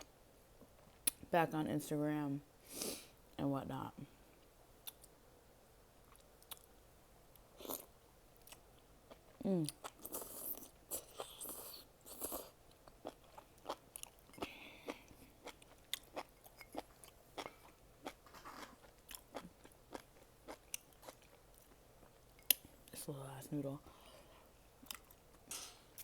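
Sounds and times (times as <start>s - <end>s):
person chewing noodles: 7.5s - 22.7s, 24.8s - 25.4s.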